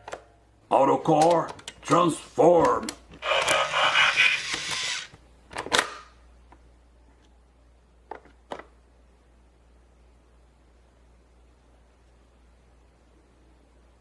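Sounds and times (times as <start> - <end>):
stuttering mechanical whir: 3.2 - 5.1.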